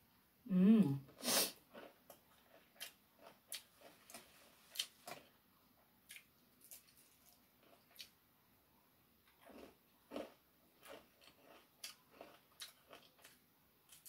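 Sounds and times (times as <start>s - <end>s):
person chewing with mouth smacks: 1.6s - 5.3s, 6.1s - 8.1s, 9.3s - 14.0s.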